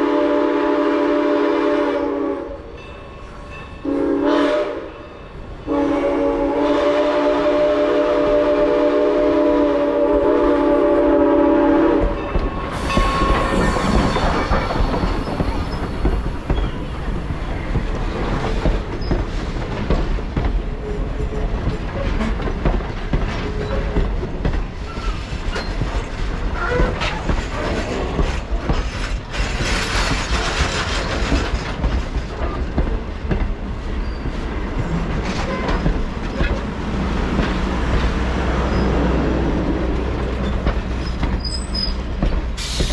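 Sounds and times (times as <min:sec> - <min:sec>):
steam locomotive whistle: 0:00.0 - 0:02.8, 0:03.8 - 0:17.0
train rumbling past: 0:00.0 - 0:42.9
wheels clicking over rail joints: 0:12.0 - 0:38.9
wheels squealing: 0:12.6 - 0:18.3, 0:40.4 - 0:42.1.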